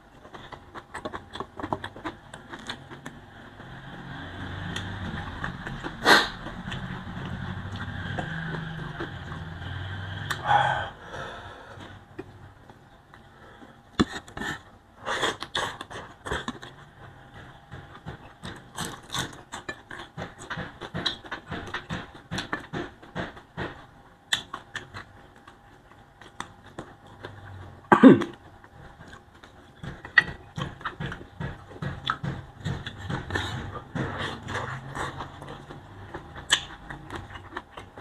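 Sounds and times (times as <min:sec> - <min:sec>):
wet chewing and lip smacking: 0:00.2 - 0:03.7, 0:24.3 - 0:38.0
short throat sound: 0:06.0 - 0:06.5.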